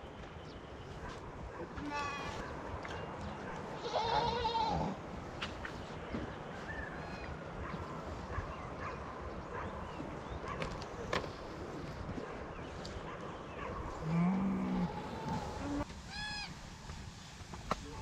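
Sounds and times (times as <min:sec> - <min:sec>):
sheep or goat bleating: 0:03.8 - 0:05.0.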